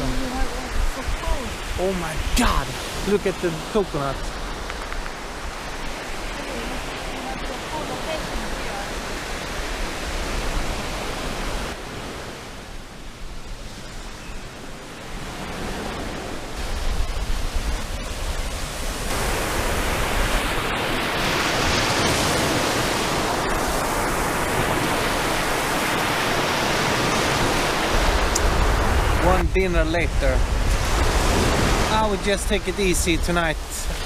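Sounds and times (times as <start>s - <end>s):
wind and sea rushing: 0.0s - 34.0s
wind rumbling on microphone: 0.0s - 34.0s.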